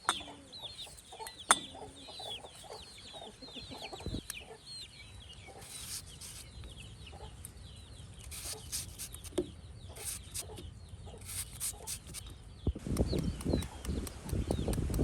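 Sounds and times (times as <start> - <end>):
chickens clucking: 0.0 - 7.4, 12.9 - 15.0
small chirping calls: 0.0 - 15.0
rough irregular noise: 5.6 - 6.5, 8.2 - 9.4, 10.0 - 10.6, 11.2 - 15.0.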